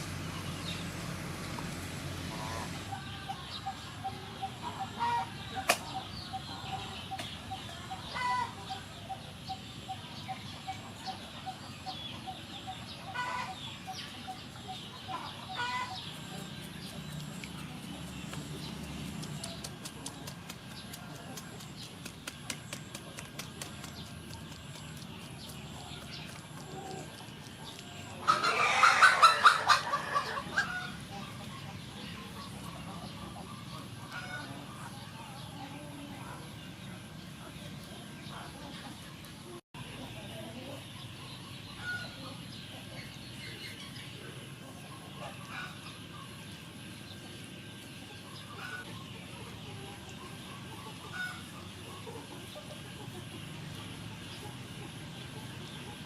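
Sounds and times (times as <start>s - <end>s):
chickens clucking: 0.0s - 56.0s
steady background noise: 0.0s - 56.0s
small birds chirping: 2.4s - 56.0s.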